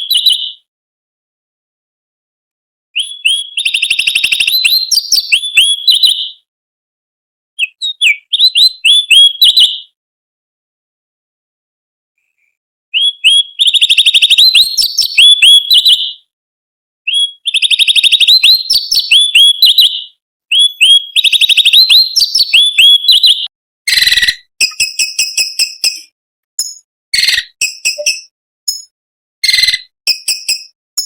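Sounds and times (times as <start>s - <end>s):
bird singing whistled trills: 0.0s - 0.6s, 3.0s - 6.4s, 7.6s - 10.0s, 13.0s - 16.3s, 17.1s - 30.8s.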